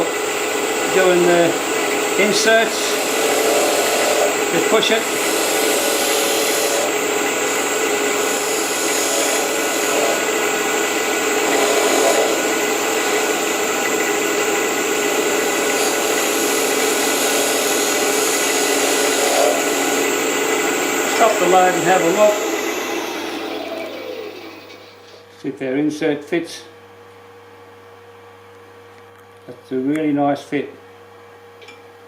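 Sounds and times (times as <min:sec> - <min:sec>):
wood lathe motor hum: 0:00.0 - 0:25.2
tool rasping on wood: 0:02.2 - 0:14.2, 0:14.8 - 0:24.9.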